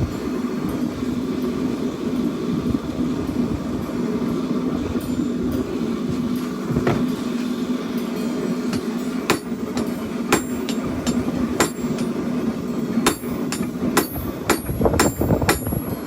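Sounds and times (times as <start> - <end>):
hammer striking steel on anvil: 8.3 - 12.4, 13.0 - 16.0.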